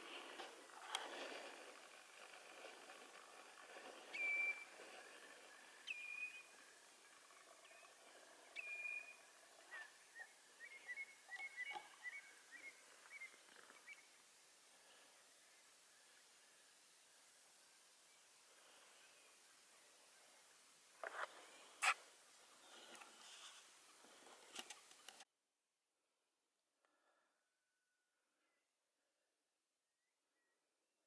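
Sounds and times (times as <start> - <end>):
bird quick chirps: 4.1 - 4.7
bird whistled notes: 4.1 - 4.7, 5.8 - 6.5, 8.6 - 14.0.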